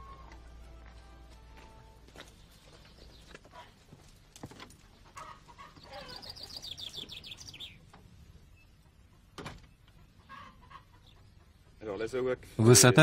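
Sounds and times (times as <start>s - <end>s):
songbird trilling: 5.8s - 7.8s.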